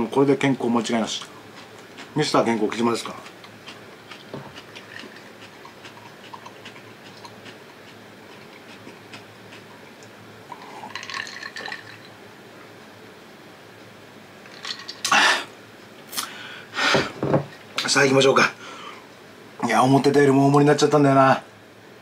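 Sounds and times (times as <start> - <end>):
wet chewing: 1.1 - 11.1.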